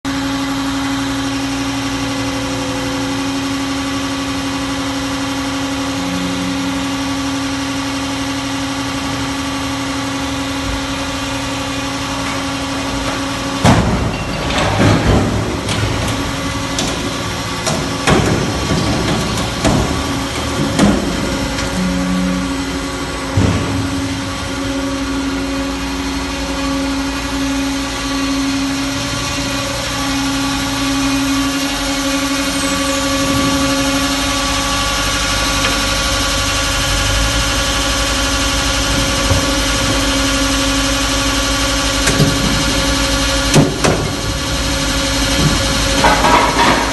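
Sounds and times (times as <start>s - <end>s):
machine mechanical hum: 0.1s - 46.9s
loud cracks and metal bangs: 43.5s - 46.9s.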